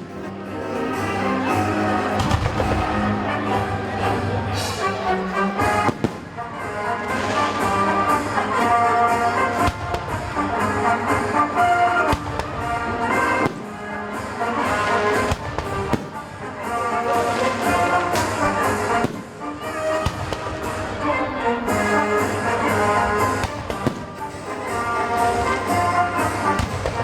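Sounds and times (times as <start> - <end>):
brass-led orchestral music: 0.0 - 27.0
fireworks shells bursting: 8.6 - 21.0, 21.7 - 27.0.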